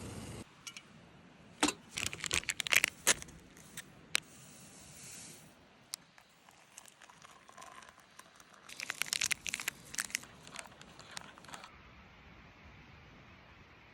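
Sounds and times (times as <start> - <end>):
crinkling rustles: 1.8 - 3.8, 6.0 - 11.7.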